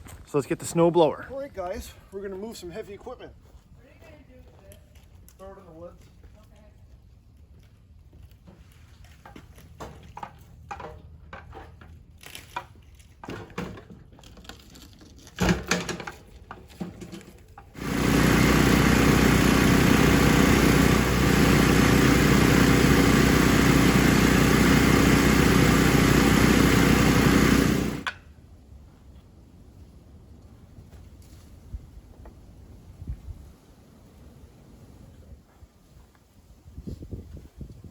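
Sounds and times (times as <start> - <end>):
motor running: 17.8 - 28.1.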